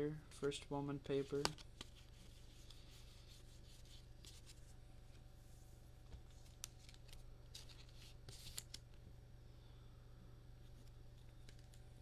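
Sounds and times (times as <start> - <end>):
low steady hum: 0.0 - 12.0
cards sliding and flipping: 6.2 - 8.8.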